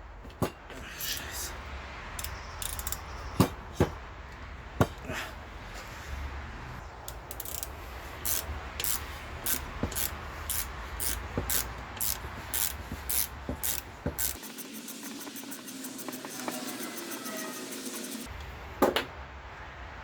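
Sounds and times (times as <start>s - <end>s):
scraping strokes on metal part: 7.1s - 18.3s.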